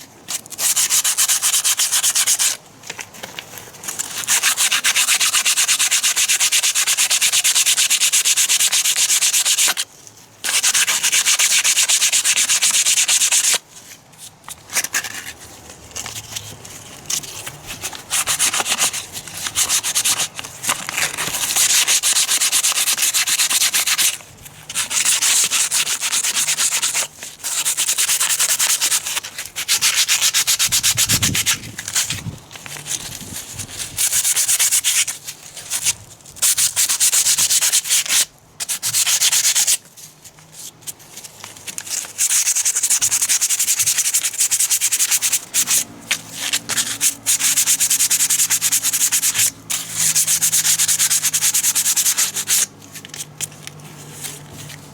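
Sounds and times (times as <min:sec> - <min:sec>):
scratchy hand sanding strokes: 0:00.5 - 0:02.6, 0:04.0 - 0:09.8, 0:10.4 - 0:13.6, 0:17.3 - 0:32.3, 0:32.9 - 0:35.8, 0:36.4 - 0:39.8, 0:42.1 - 0:52.7.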